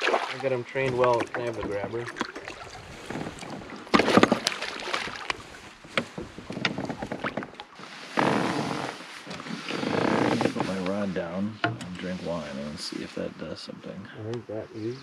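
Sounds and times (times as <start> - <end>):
knocks in a canoe: 0.0 - 11.0.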